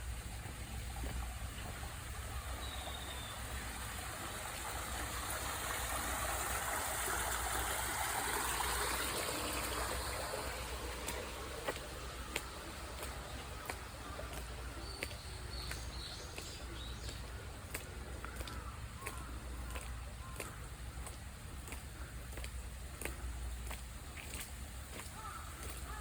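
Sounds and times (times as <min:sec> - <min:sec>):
storm runoff rushing down a road: 0:00.0 - 0:26.0.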